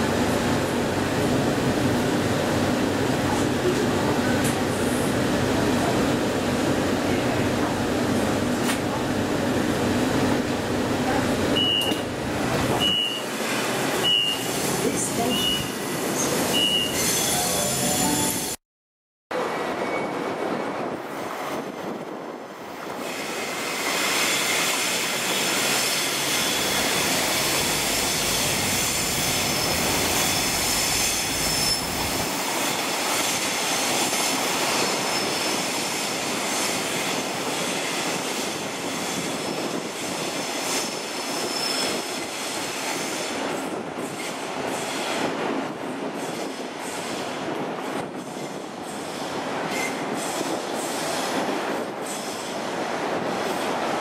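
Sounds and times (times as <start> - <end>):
train wheels rushing on rail: 0.0 - 18.6, 19.4 - 54.0
high wheel squeal: 15.2 - 18.5, 23.8 - 32.2.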